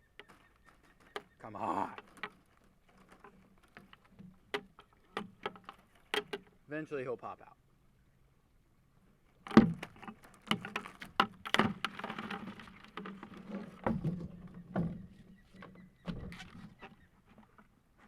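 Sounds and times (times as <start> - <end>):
crab trap knocking and rattling: 1.0 - 6.5, 9.4 - 15.0.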